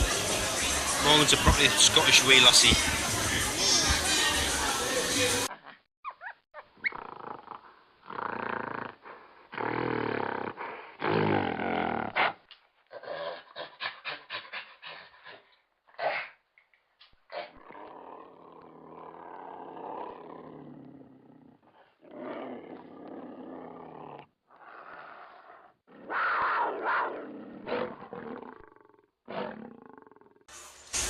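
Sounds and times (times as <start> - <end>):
recorded tiger roars and growls: 6.9 - 13.4, 17.3 - 30.5.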